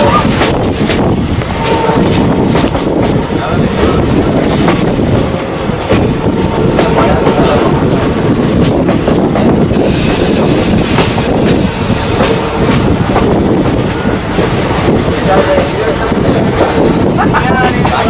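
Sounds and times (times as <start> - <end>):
train rumble: 0.0 - 18.0
high hiss: 9.7 - 13.4.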